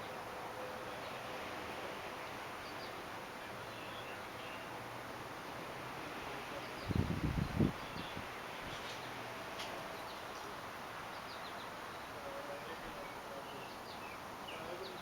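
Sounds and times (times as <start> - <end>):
steady background hiss: 0.0 - 15.0
small birds chirping: 6.6 - 9.2, 9.9 - 15.0.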